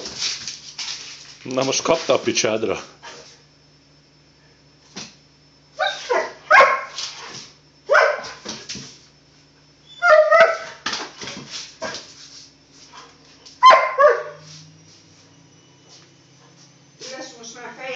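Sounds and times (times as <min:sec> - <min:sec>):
dog barking: 0:05.8 - 0:07.0, 0:07.9 - 0:08.4, 0:10.0 - 0:10.8, 0:13.6 - 0:14.5.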